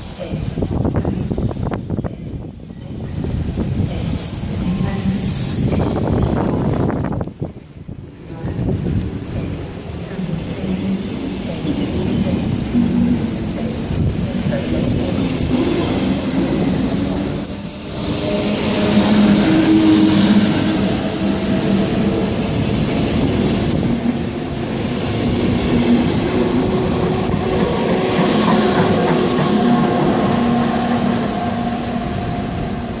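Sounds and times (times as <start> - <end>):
train running: 0.0 - 33.0
wheels squealing on rails: 4.0 - 7.2, 14.4 - 22.6.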